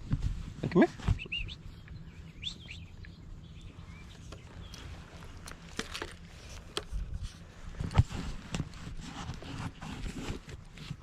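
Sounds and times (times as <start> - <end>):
low steady rumble: 0.0 - 11.0
faint bird chirps: 1.0 - 5.1.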